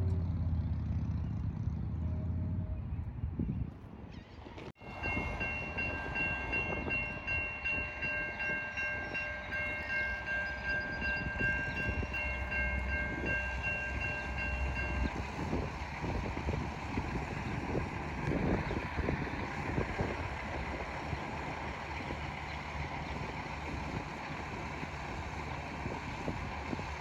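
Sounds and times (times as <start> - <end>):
train rumbling past: 4.4 - 27.0.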